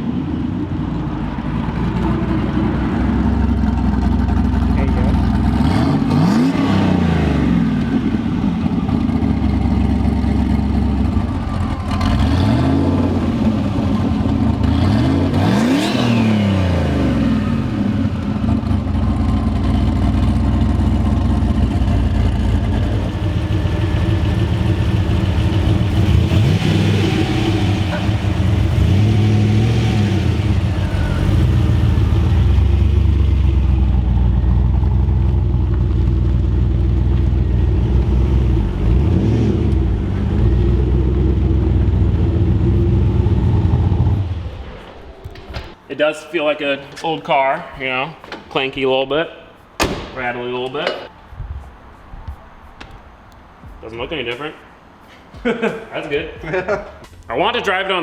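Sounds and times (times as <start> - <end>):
car engine revving: 1.3 - 45.8.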